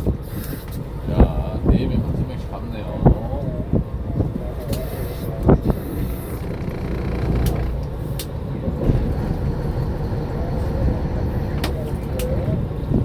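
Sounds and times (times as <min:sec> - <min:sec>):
boat engine idling: 0:04.4 - 0:13.0.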